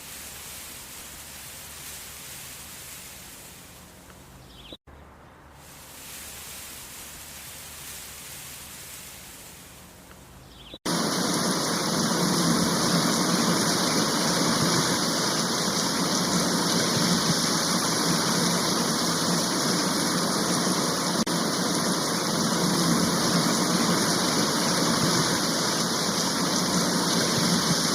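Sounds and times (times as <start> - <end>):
floodwater rushing: 10.9 - 27.9.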